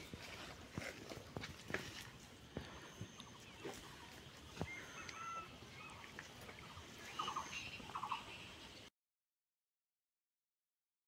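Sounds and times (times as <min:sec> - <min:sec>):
birds chirping and whistling: 0:02.0 - 0:08.6.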